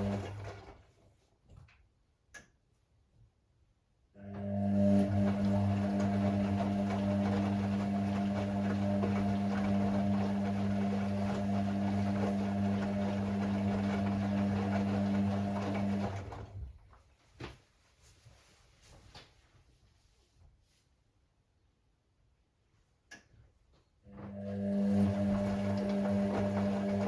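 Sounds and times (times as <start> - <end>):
washing machine humming: 0.0 - 1.0, 4.2 - 17.0, 24.1 - 27.0.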